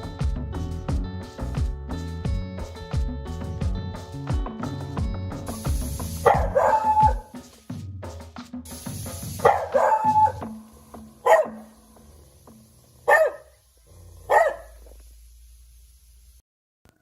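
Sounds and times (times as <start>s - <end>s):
dog barking: 6.2s - 7.3s, 9.4s - 10.4s, 11.2s - 11.7s, 13.0s - 13.6s, 14.2s - 14.9s.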